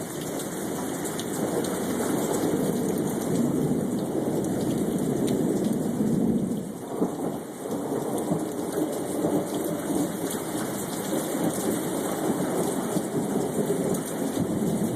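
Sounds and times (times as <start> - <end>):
heavy rain falling: 0.0 - 14.9
thunder rumbling: 1.4 - 14.9.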